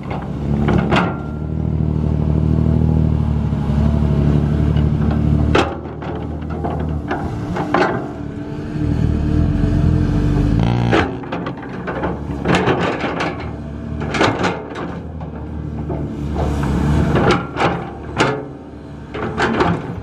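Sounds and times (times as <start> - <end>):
diesel engine running: 0.0 - 20.0
metallic knocks and clanks: 10.9 - 20.0.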